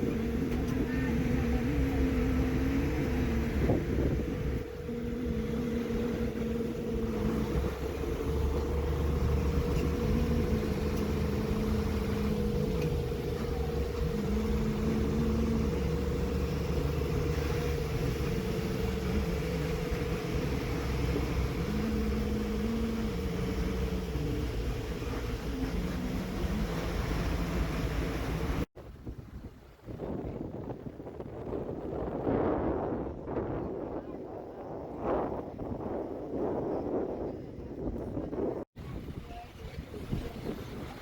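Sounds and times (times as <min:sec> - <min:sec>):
vehicle engine droning: 0:00.0 - 0:28.7.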